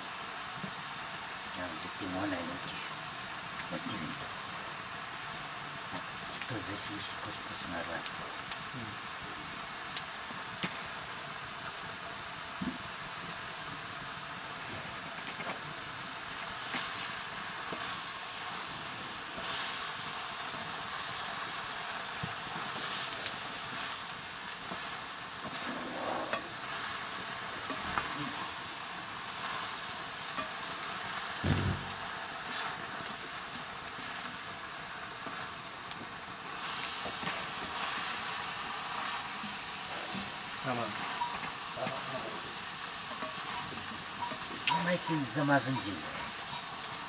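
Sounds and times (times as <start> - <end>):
mushrooms sizzling in a wok: 0.0 - 47.0
dull thump: 31.4 - 32.0.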